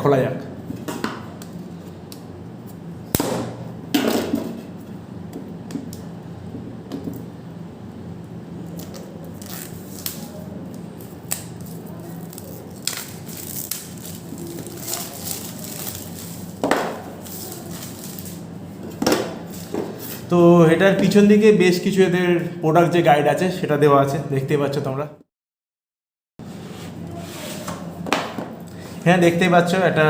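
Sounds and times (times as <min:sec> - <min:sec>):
steady low hum: 0:00.0 - 0:24.5
cardboard packaging rustling: 0:11.5 - 0:18.4.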